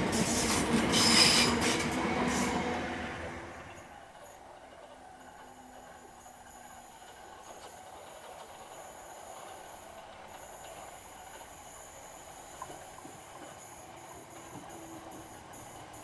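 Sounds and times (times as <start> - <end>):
electric train rumbling: 0.0 - 16.0.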